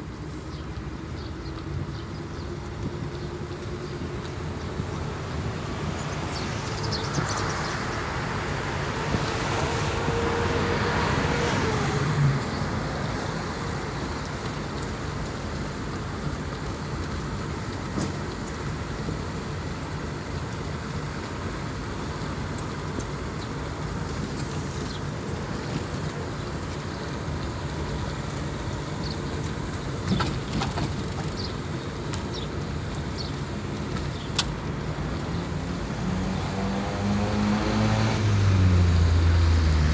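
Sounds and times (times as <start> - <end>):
road traffic rumble: 0.0 - 39.9
vehicle passing close: 5.5 - 14.2, 34.6 - 39.9.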